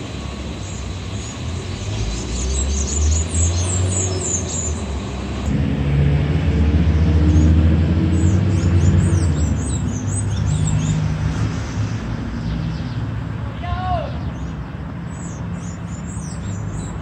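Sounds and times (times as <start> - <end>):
birds chirping: 0.0 - 5.4, 6.7 - 17.0
car engine running: 4.0 - 10.6.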